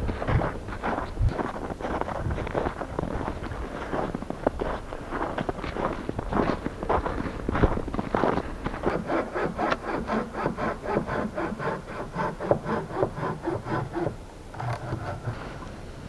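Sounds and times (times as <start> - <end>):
hand saw cutting wood: 8.1 - 15.7.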